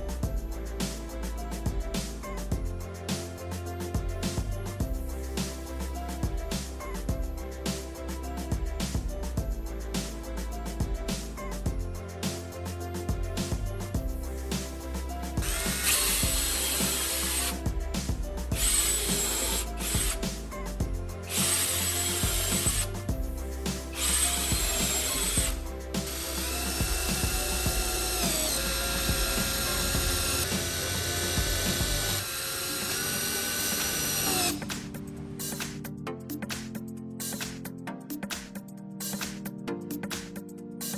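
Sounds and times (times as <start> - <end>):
background music: 0.0 - 40.9
power drill whining: 15.4 - 17.6, 18.6 - 20.2, 21.3 - 22.9, 23.9 - 34.6.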